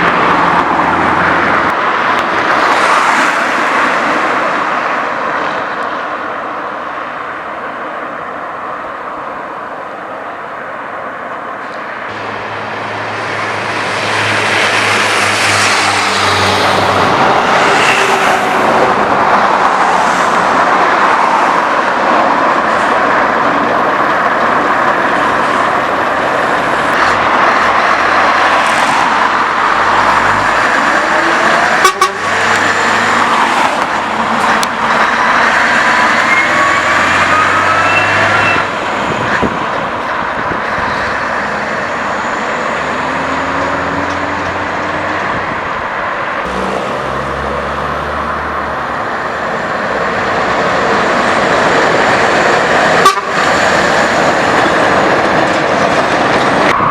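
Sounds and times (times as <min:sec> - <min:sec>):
truck engine with loud exhaust: 0:46.4 - 0:49.3.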